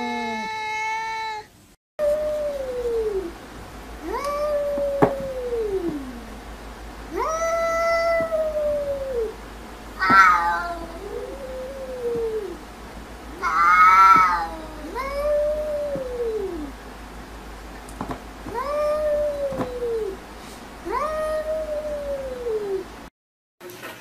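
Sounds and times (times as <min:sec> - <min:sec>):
cat yowling: 0:00.0 - 0:03.3, 0:04.0 - 0:06.3, 0:07.1 - 0:09.4, 0:10.0 - 0:12.6, 0:13.3 - 0:16.7, 0:18.5 - 0:20.2, 0:20.9 - 0:22.9.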